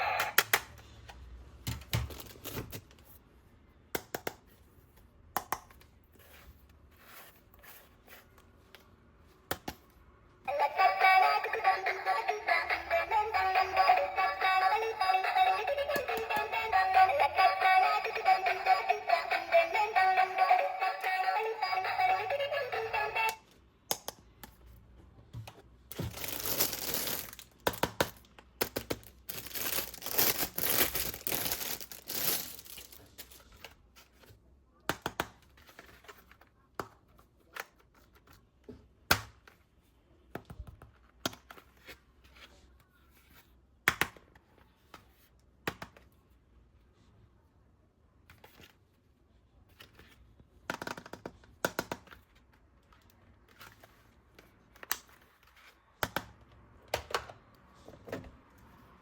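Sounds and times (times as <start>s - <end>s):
plastic and paper crinkling: 25.9s - 27.6s, 28.6s - 34.2s.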